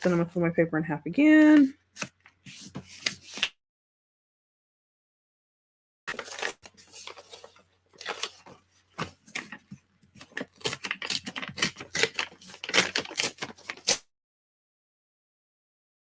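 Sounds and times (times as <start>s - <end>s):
paper rustling and crinkling: 1.6s - 3.5s, 6.1s - 14.1s.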